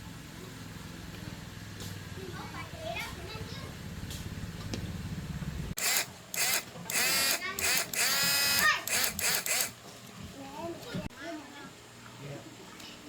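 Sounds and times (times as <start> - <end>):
small electric motor whining: 5.8 - 9.8.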